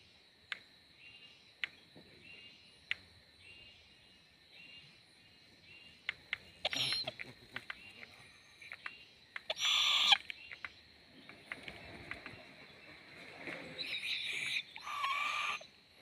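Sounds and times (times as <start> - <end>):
owl raspy hissing calls: 6.6 - 8.7, 9.4 - 10.3, 13.8 - 15.7.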